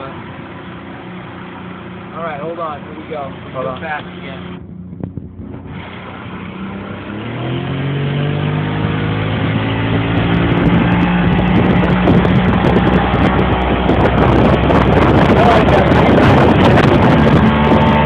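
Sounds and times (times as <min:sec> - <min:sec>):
boat motor revving: 0:00.0 - 0:18.0
wind buffeting microphone: 0:03.4 - 0:07.9, 0:08.6 - 0:18.0
rushing water: 0:05.7 - 0:18.0.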